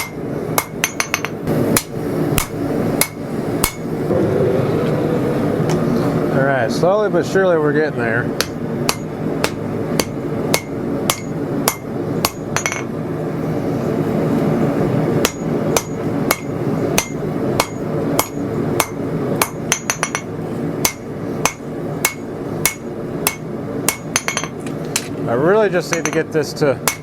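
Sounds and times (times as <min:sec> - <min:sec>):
steady rushing noise: 0:00.6 - 0:17.0.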